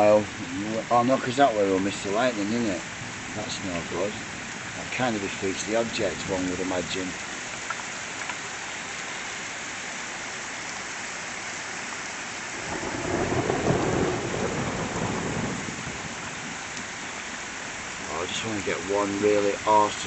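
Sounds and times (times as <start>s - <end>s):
heavy rain falling: 0.0s - 20.0s
thunder rumble: 12.6s - 16.6s.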